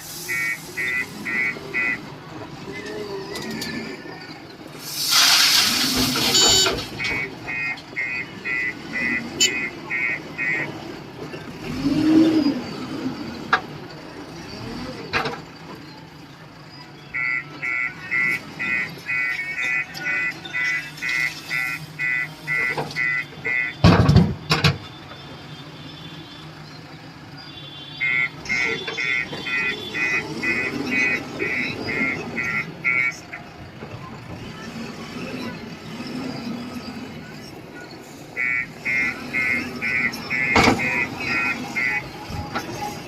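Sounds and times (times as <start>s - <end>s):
diesel engines running: 0.0s - 43.0s
repeating beeping tune: 0.3s - 2.0s, 17.2s - 23.8s, 28.0s - 33.2s, 38.4s - 42.4s.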